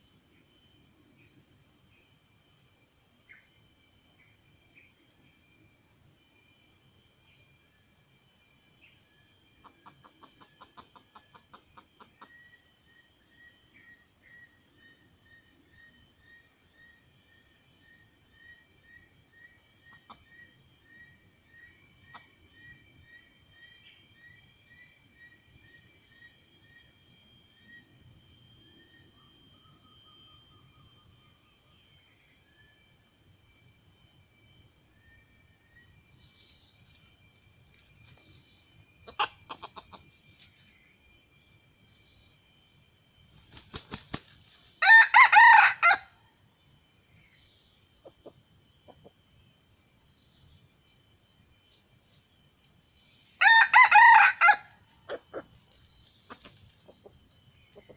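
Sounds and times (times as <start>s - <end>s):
insect chorus: 0.0s - 57.9s.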